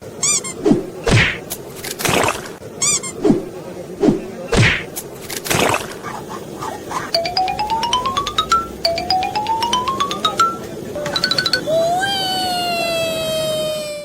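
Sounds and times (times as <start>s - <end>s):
comic thunks and whacks: 0.7s - 1.4s, 3.2s - 4.9s
rising bell-like tones: 7.2s - 11.8s.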